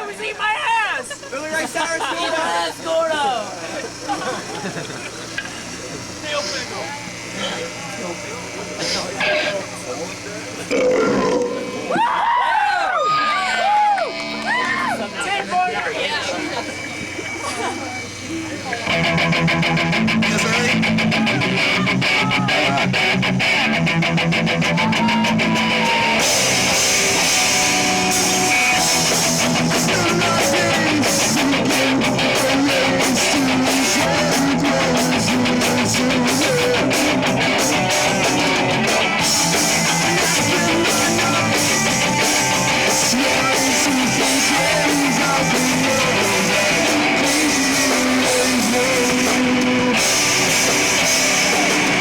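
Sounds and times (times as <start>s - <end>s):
rock band playing: 10.7s - 17.4s, 18.8s - 52.0s.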